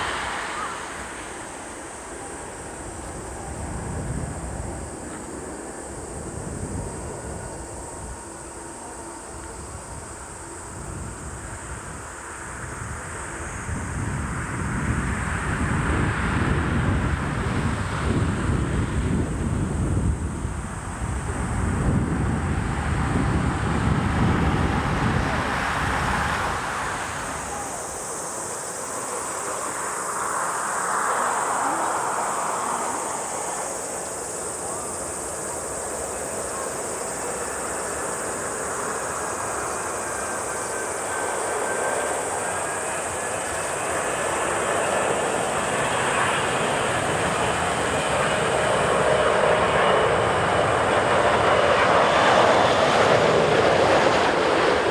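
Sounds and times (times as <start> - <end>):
wind buffeting microphone: 0.0 - 29.2
jet airliner engine roar: 0.0 - 54.9.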